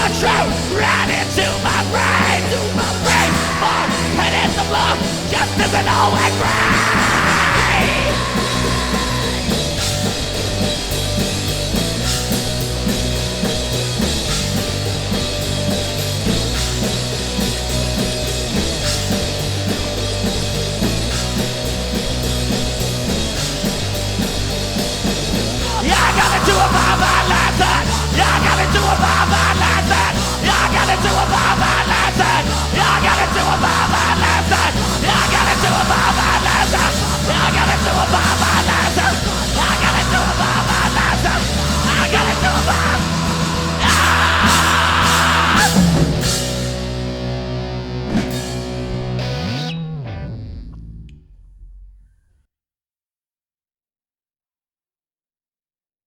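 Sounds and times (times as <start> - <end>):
rock band instrumental: 0.0 - 51.0
heavy electric guitar: 0.0 - 51.3.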